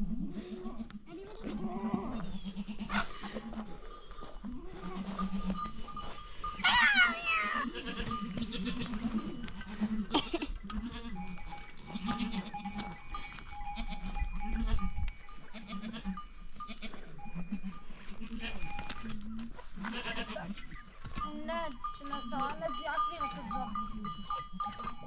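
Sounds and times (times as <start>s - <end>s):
goats bleating: 0.5s - 3.6s, 4.5s - 6.0s, 6.6s - 13.0s, 15.5s - 18.8s, 19.8s - 20.6s
bell ringing: 21.7s - 25.0s.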